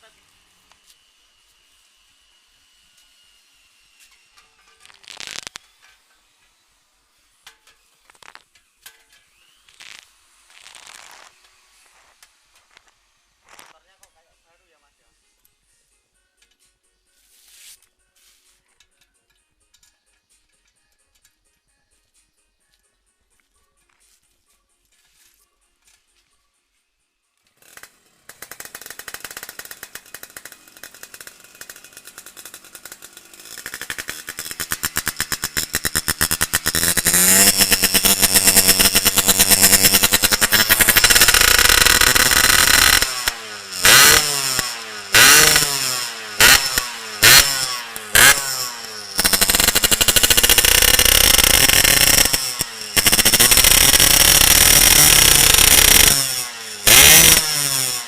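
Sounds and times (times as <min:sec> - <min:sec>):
motorcycle engine revving: 0:27.5 - 0:58.0.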